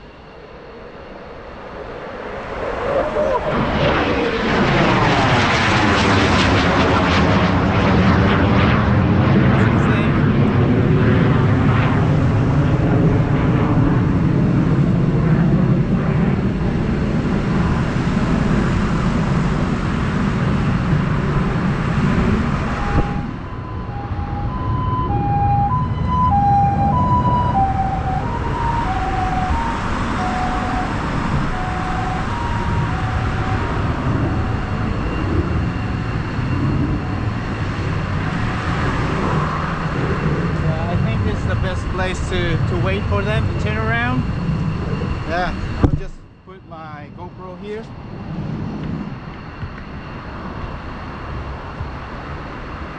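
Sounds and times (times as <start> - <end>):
loud low rumble: 7.6 - 49.3
two-tone emergency siren: 14.0 - 52.9.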